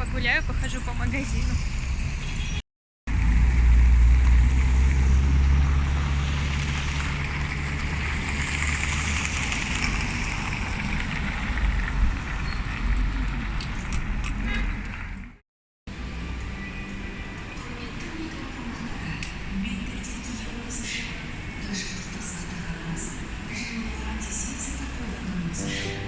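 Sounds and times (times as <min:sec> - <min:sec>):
car engine and road rumble: 0:00.0 - 0:16.4.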